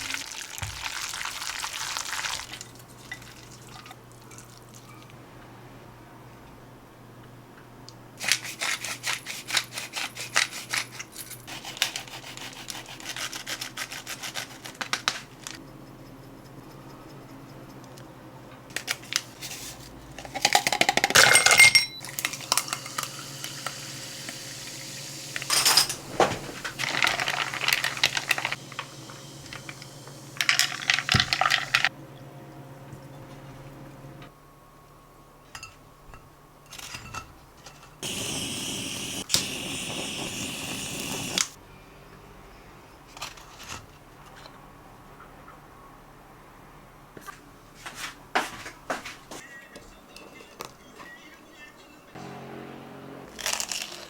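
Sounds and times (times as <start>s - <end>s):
dishes and utensils clattering: 20.2s - 23.2s, 25.4s - 28.5s, 35.5s - 38.0s.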